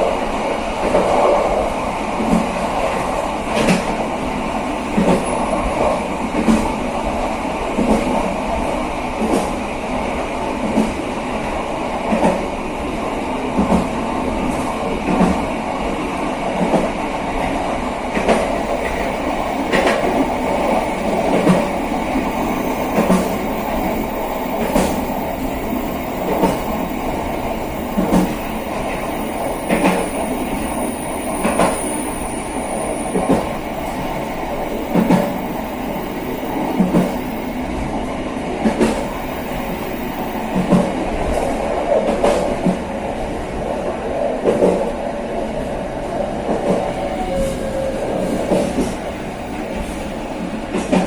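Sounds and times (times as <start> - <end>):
train wheels rumbling: 0.0 - 9.7, 16.6 - 43.8, 46.1 - 51.0
wheels clacking over rail joints: 17.4 - 37.8.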